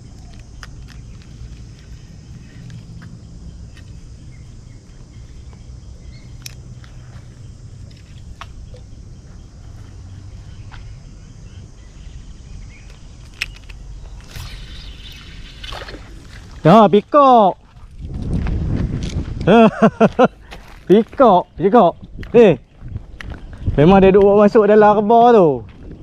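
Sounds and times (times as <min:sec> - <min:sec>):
steady low rumble: 0:00.0 - 0:24.4
sharp clicks: 0:12.8 - 0:16.1.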